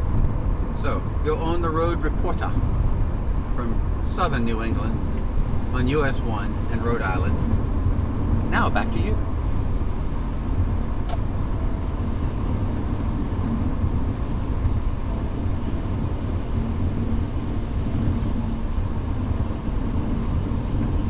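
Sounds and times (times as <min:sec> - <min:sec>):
car road noise from inside: 0:00.0 - 0:21.0
tyres on wet road: 0:00.0 - 0:21.0.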